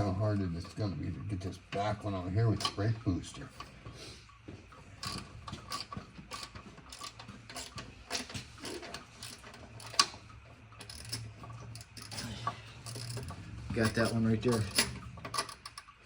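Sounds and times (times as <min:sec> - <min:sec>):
socket ratchet clicking: 0:05.0 - 0:10.1, 0:10.8 - 0:16.0.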